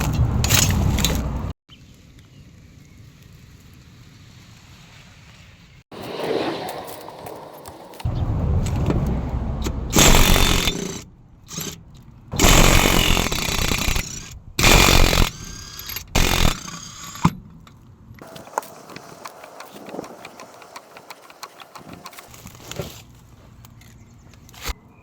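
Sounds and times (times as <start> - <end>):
power wrench running: 9.9 - 11.8, 12.4 - 17.4
metallic tool clicks and rattles: 10.0 - 17.3.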